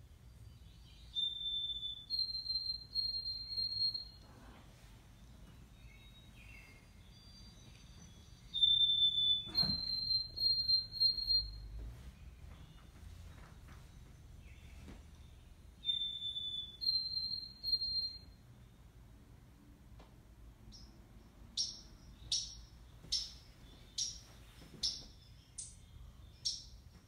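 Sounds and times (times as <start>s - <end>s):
faint bird chirps: 0.0s - 19.0s, 20.6s - 27.0s
bird whistling song: 0.4s - 4.3s, 5.2s - 11.8s, 14.4s - 18.4s, 20.7s - 26.9s.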